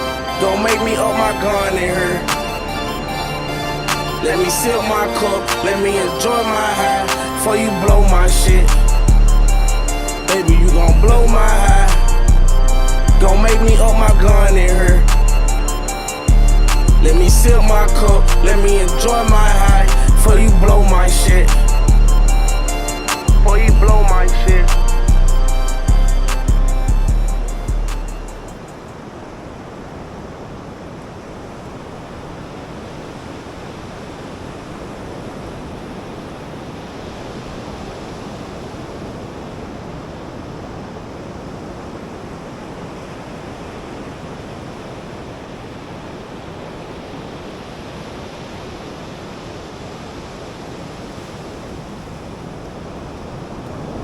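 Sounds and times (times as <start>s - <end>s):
ocean surf washing onto beach: 0.0s - 7.9s, 28.4s - 54.0s.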